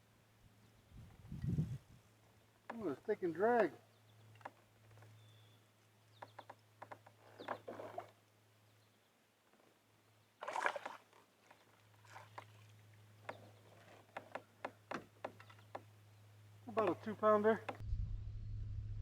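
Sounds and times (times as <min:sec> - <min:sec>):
light clicks and knocks: 0:13.2 - 0:15.9
faint low hum: 0:16.4 - 0:19.0.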